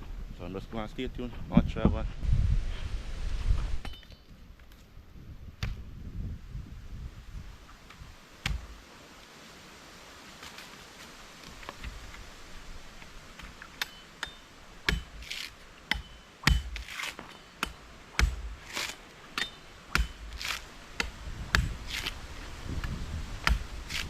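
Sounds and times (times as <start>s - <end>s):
machete chopping coconuts: 8.4s - 8.7s, 13.4s - 24.0s.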